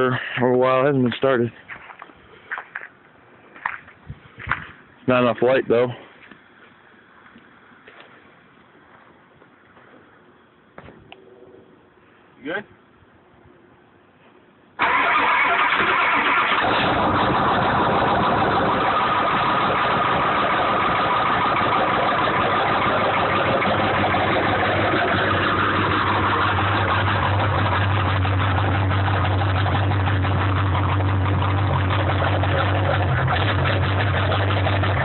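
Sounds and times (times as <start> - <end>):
diesel engine starting and idling: 14.8 - 35.0.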